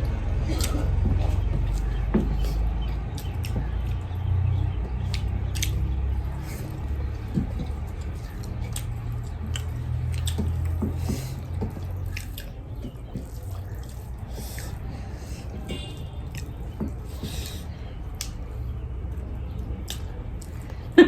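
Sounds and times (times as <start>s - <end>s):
wet chewing: 0.0s - 21.0s
lip smacks: 0.1s - 21.0s.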